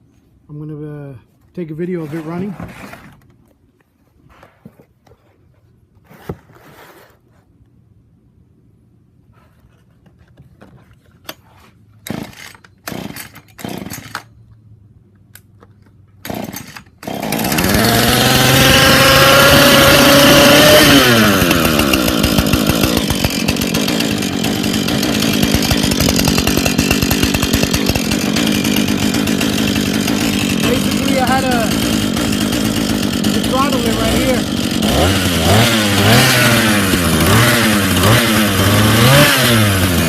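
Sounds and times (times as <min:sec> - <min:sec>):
chainsaw engine running: 0:12.1 - 0:14.2, 0:16.2 - 0:40.0
starter cord pulls: 0:25.1 - 0:34.2.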